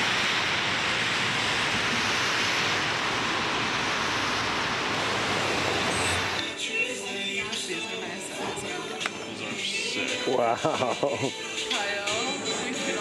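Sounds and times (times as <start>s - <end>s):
rainy city street hiss: 0.0s - 6.8s.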